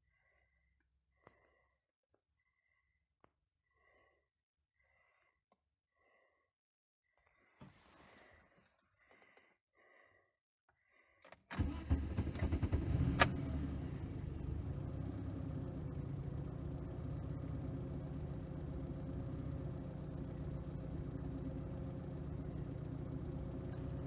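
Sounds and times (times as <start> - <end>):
car engine cranking and idling: 11.5 - 24.0.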